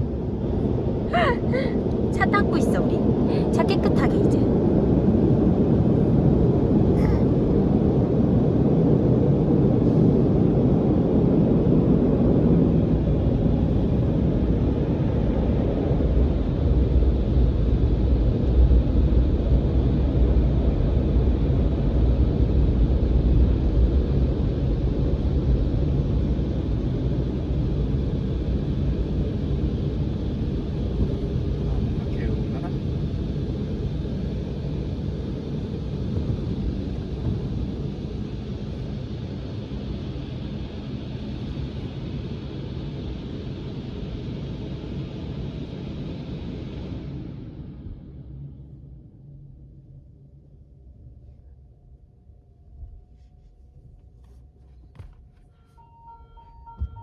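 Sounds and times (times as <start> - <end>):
car wash rumble from inside car: 3.7 - 41.9, 52.6 - 57.0.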